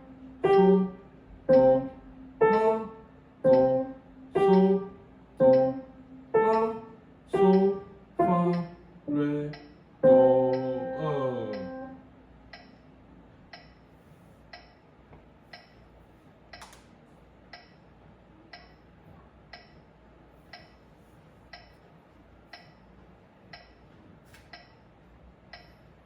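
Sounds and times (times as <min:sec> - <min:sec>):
piano note: 0:00.0 - 0:08.7, 0:10.0 - 0:12.1
soft steady ticking: 0:00.4 - 0:02.8, 0:03.4 - 0:08.8, 0:09.5 - 0:12.9, 0:13.5 - 0:14.9, 0:15.5 - 0:16.8, 0:17.4 - 0:20.9, 0:21.5 - 0:26.0.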